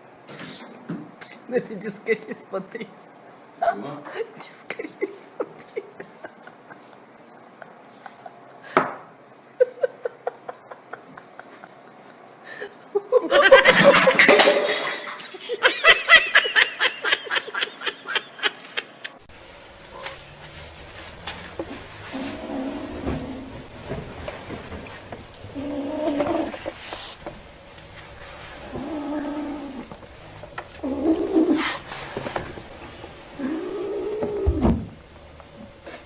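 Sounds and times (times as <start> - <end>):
person laughing loudly: 4.4 - 8.4, 9.6 - 19.2.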